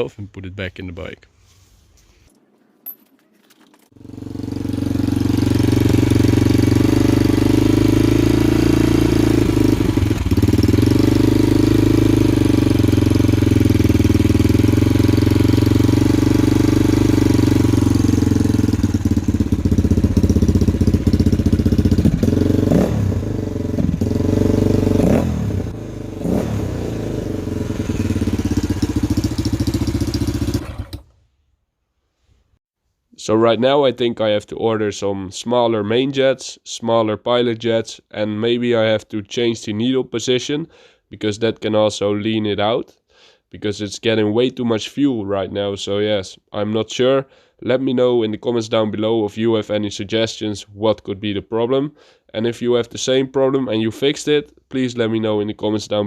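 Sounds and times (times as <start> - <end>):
dirt bike engine running: 4.0 - 31.1.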